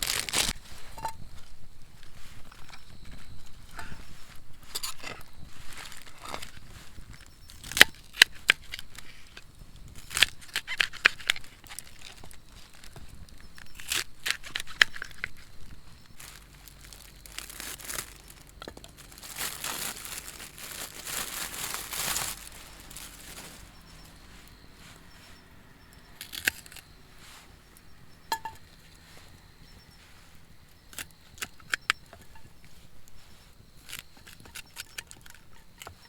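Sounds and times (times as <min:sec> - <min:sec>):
packaging crinkling and tearing: 0:00.0 - 0:00.6, 0:10.0 - 0:24.4, 0:26.2 - 0:26.9
packaging rustling: 0:00.0 - 0:00.6, 0:10.0 - 0:25.2.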